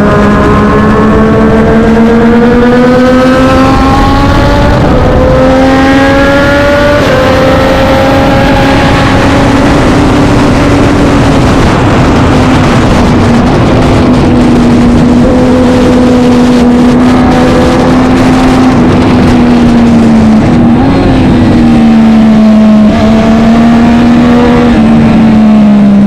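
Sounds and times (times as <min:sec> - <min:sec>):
heavy rushing noise: 0:00.0 - 0:26.0
racing motorcycle engine: 0:00.0 - 0:26.0.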